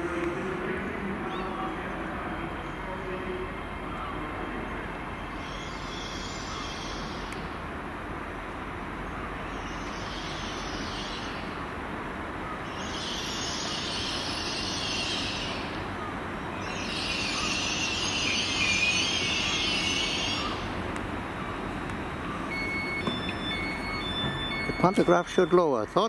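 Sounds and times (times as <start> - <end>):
train rumbling: 0.0 - 26.0
wheel and brake squeal: 16.6 - 20.7, 22.4 - 25.8.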